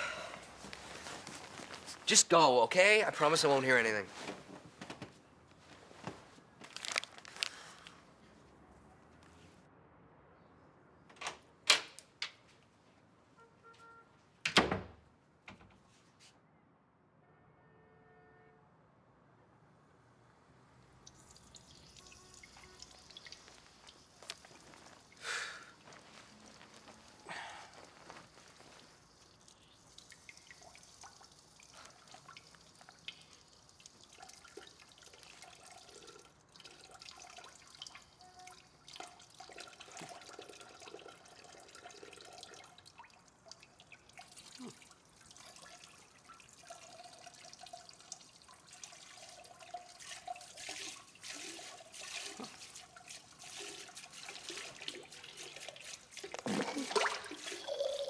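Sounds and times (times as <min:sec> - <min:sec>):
water trickling and dripping: 0:20.8 - 0:58.0.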